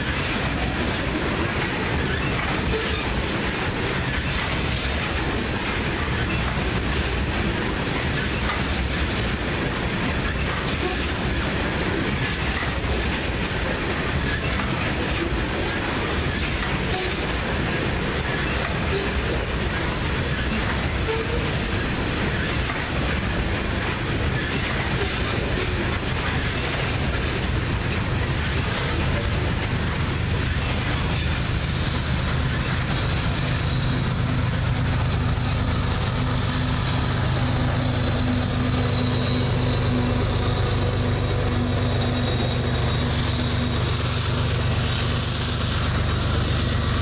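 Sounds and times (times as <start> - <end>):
diesel locomotive engine drone: 0.0 - 47.0
freight train wheels on rails: 0.0 - 47.0.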